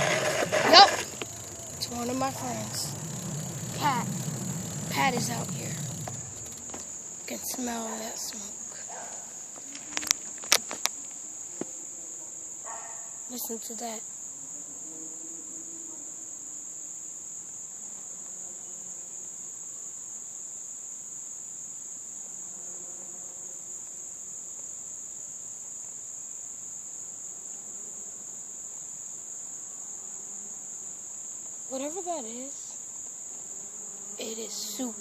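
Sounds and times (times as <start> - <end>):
distant dirt bike engine: 0.0 - 10.0
high-pitched insect chorus: 0.0 - 35.0.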